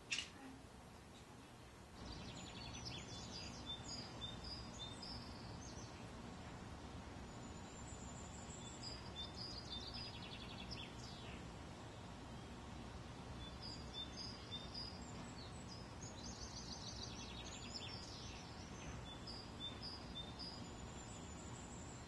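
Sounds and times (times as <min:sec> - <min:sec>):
small birds chirping: 0:00.0 - 0:22.0
bird trill: 0:07.2 - 0:12.6, 0:13.4 - 0:22.0.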